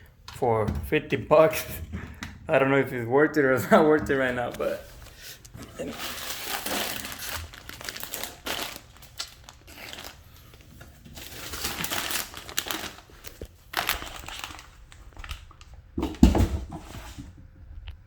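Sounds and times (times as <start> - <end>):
packaging crinkling and rustling: 3.9 - 17.2.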